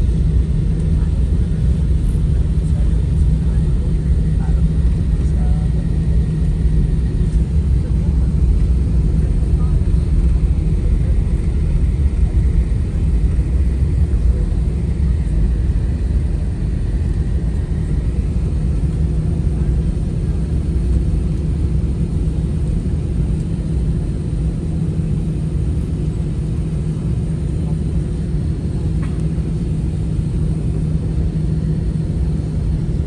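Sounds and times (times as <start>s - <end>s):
constant cabin hum: 0.0s - 33.0s
jet engine rumble in cabin: 0.0s - 33.0s.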